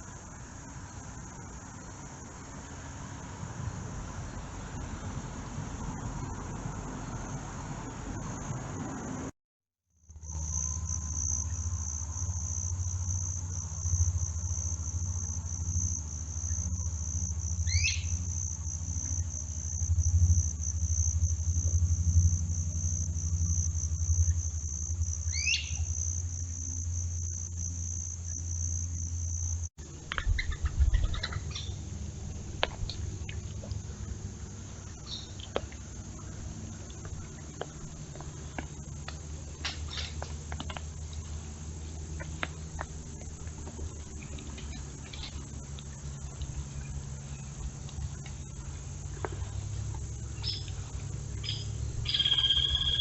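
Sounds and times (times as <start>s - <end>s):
insects trilling: 0.0s - 9.2s, 10.0s - 53.0s
low steady hum: 10.0s - 53.0s
bird chirps and clicks: 30.1s - 31.7s
bird rising calls: 51.4s - 53.0s.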